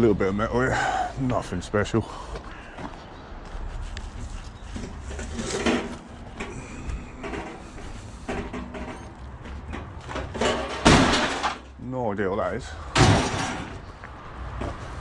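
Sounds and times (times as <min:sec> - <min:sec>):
scrap metal being handled: 0:04.0 - 0:11.8, 0:13.0 - 0:13.9
metal scrape or clatter: 0:04.9 - 0:06.4.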